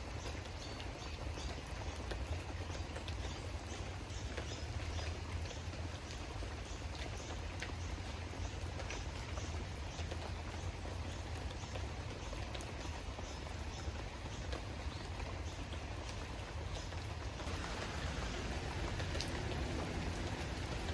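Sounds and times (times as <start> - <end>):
steady rain: 0.0 - 20.9
drops ticking: 17.4 - 20.9.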